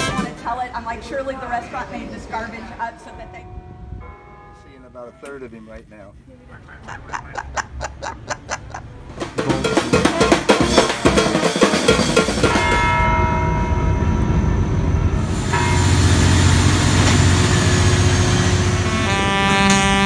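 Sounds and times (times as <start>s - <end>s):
fast drumming: 9.1s - 12.9s.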